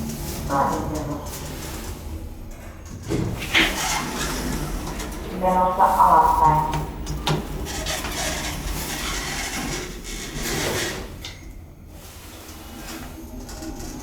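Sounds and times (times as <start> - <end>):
elevator doors sliding: 0.0 - 14.0
station hall noise: 3.4 - 8.0.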